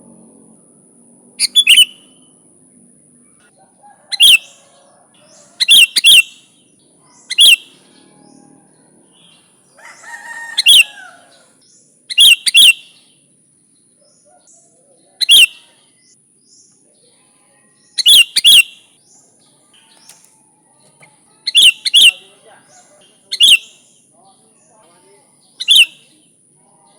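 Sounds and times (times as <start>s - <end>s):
soft warbling chatter: 0.0s - 13.4s, 14.0s - 26.9s
bulbul sharp calls: 1.4s - 2.4s, 4.1s - 8.5s, 9.1s - 13.2s, 14.0s - 16.7s, 17.8s - 20.3s, 21.0s - 26.4s.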